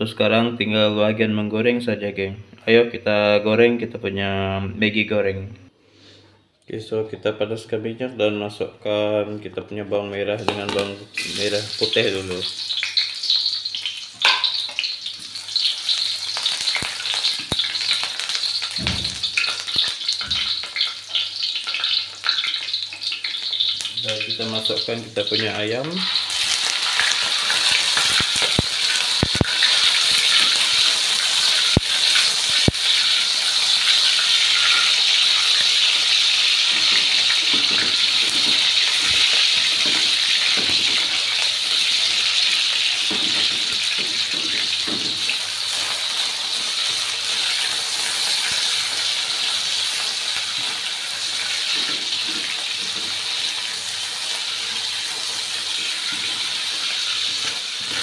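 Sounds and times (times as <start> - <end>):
chicken sizzling in hot oil: 10.5 - 58.0.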